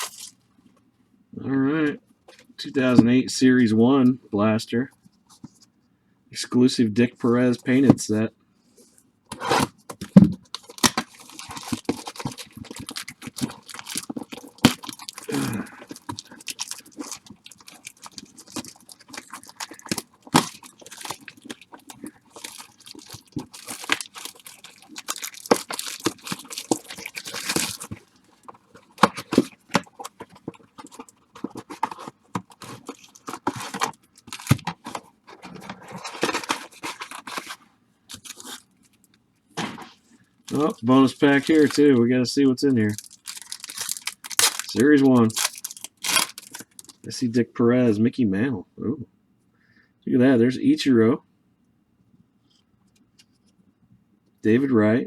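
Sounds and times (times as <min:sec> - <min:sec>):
wrappers crinkling and tearing: 0:00.0 - 0:00.4, 0:09.4 - 0:39.1, 0:40.5 - 0:42.0, 0:42.7 - 0:47.1
sharp rustles and clicks: 0:10.4 - 0:38.6.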